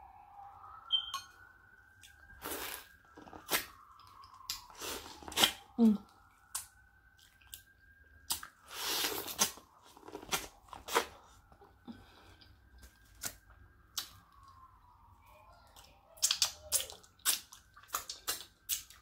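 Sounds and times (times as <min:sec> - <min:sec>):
faint siren wailing: 0:00.0 - 0:19.0
crunchy chewing of corn: 0:08.3 - 0:11.4.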